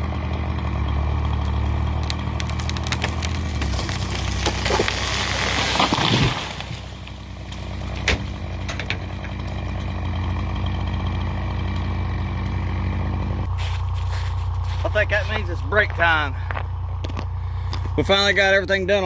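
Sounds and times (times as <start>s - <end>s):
diesel engine idling: 0.0s - 5.8s, 6.4s - 19.0s
crashing crackling noise: 1.4s - 8.1s.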